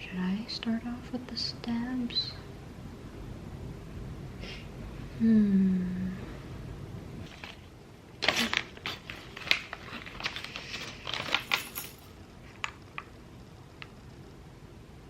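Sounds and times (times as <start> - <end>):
plastic parts clicking and rattling: 8.2 - 12.8.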